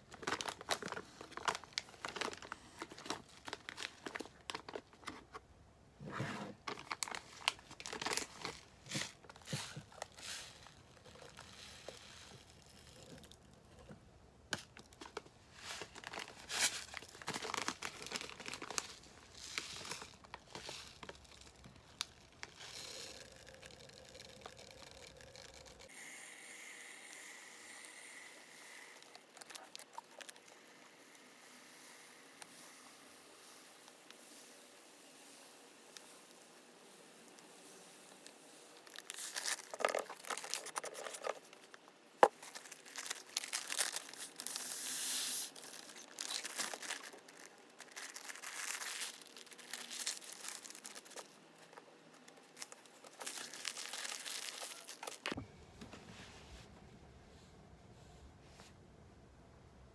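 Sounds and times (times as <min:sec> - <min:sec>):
packaging crinkling and tearing: 0:00.0 - 0:05.4, 0:06.6 - 0:13.4, 0:14.6 - 0:25.9, 0:28.6 - 0:30.9, 0:38.2 - 0:55.4.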